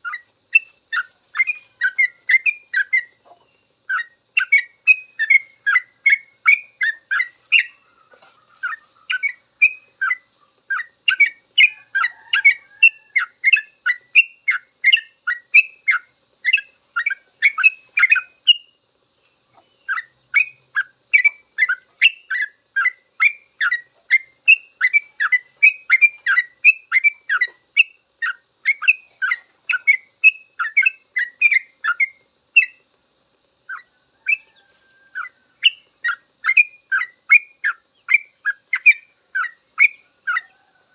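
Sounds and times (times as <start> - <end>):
bird chattering song: 0.0 - 32.9, 33.6 - 40.7.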